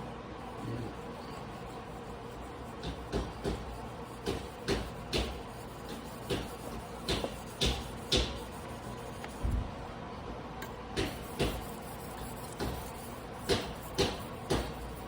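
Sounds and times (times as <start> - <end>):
knife scraping on whetstone: 0.4 - 9.4, 11.0 - 15.0.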